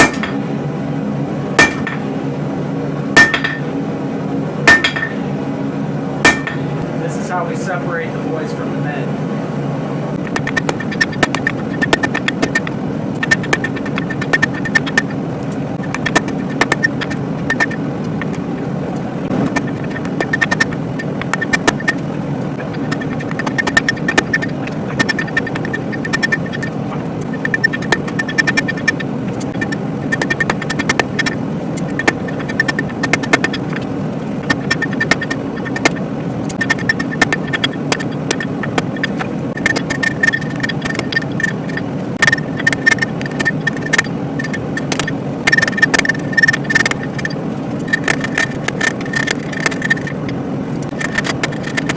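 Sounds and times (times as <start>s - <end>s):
hammer striking steel on anvil: 0.0s - 0.4s, 1.6s - 2.1s, 3.2s - 3.7s, 4.7s - 5.2s, 6.2s - 6.8s
forge roaring: 0.0s - 51.9s.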